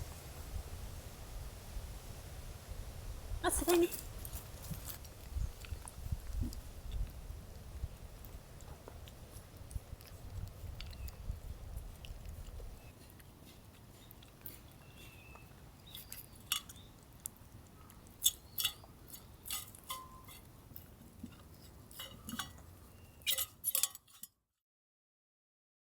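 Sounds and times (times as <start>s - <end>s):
chewing clicks: 4.0s - 24.2s
utensils clinking: 14.5s - 16.9s, 18.2s - 24.3s.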